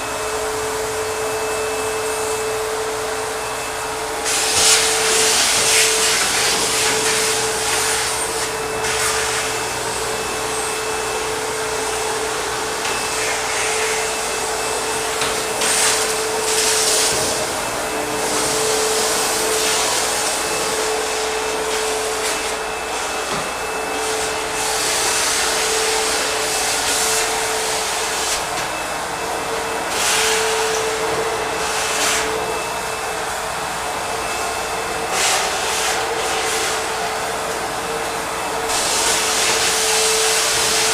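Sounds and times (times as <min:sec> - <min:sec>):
vacuum cleaner motor whine: 0:00.0 - 0:40.9.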